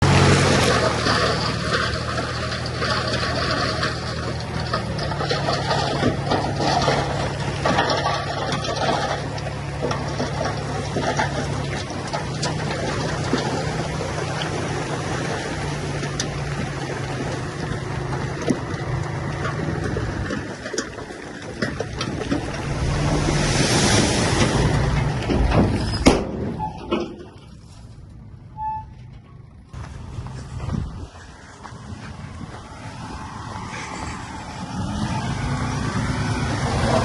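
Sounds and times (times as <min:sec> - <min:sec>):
scraping and clatter: 0:00.0 - 0:28.2
heavy diesel machinery running: 0:00.0 - 0:37.0.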